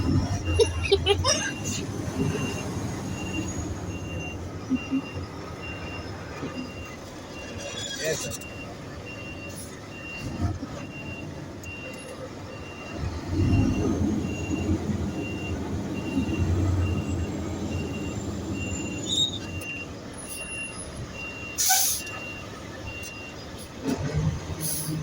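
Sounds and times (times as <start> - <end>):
truck engine running: 0.0 - 7.4, 12.2 - 21.3
reversing alarm beeps: 1.5 - 23.5.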